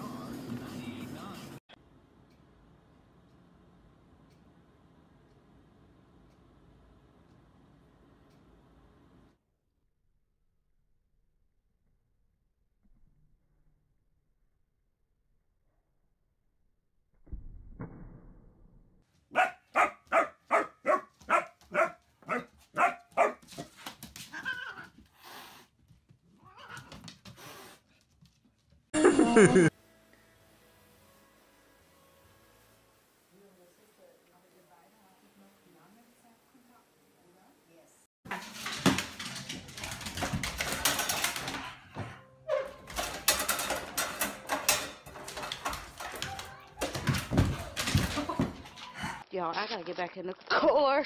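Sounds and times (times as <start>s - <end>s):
puppy yapping: 19.3s - 23.4s.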